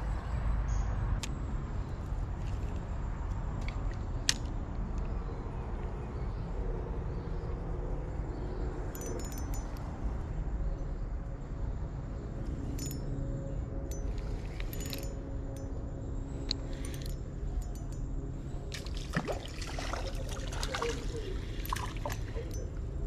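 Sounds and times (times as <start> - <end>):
steady low rumble: 0.0 - 23.0
metallic jingling and clinking: 8.9 - 10.1, 12.4 - 23.0.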